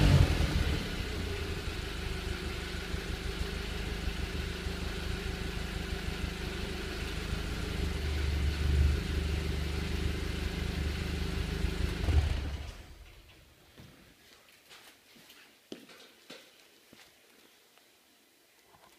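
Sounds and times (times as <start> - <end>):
engine throttle blips: 0.0 - 13.2
car engine idling: 0.0 - 13.3.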